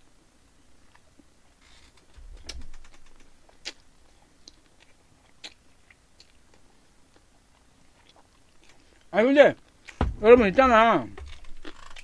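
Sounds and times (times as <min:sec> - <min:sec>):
sharp clicks: 0:01.9 - 0:03.8
close-up chewing: 0:02.8 - 0:10.0
dull low bump: 0:10.0 - 0:11.5.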